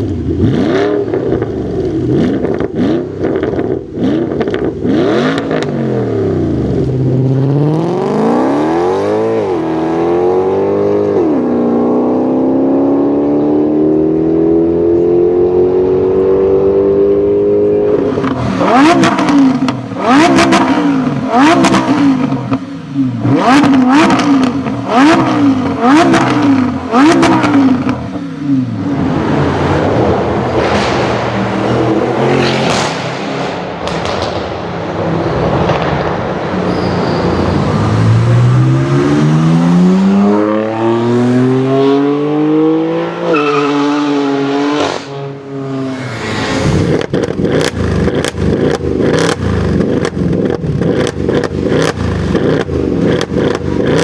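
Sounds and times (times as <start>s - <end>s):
supercar engine revving: 0.0s - 34.4s, 37.4s - 54.0s
exhaust pops and cracks: 33.8s - 34.7s.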